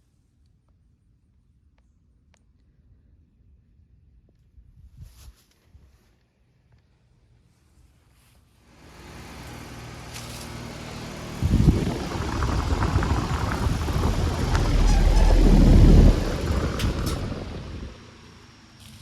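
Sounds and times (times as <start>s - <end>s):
heat pump mechanical hum: 9.2s - 19.0s
low rumble: 11.2s - 18.4s.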